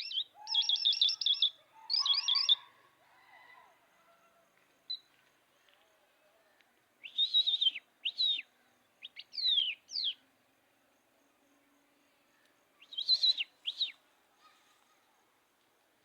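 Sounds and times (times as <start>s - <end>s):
songbird whistling song: 0.0s - 2.6s, 7.0s - 10.2s, 12.8s - 14.0s.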